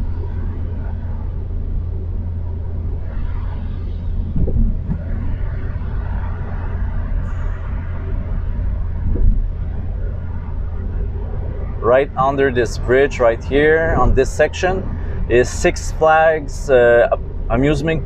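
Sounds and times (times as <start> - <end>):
car road rumble: 0.0 - 18.0.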